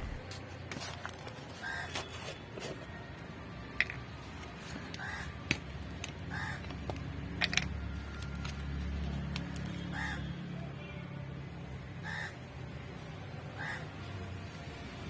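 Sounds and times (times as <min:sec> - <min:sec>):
crow cawing: 0:01.6 - 0:02.0, 0:05.0 - 0:05.4, 0:06.2 - 0:06.8, 0:09.8 - 0:10.4, 0:12.0 - 0:12.4, 0:13.5 - 0:14.0.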